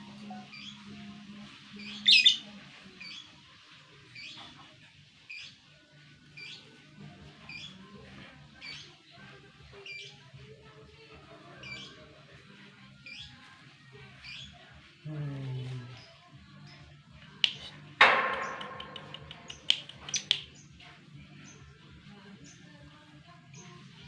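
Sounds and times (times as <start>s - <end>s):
bird chirping: 1.8s - 2.4s, 17.4s - 20.7s
bird squawk: 2.0s - 2.4s.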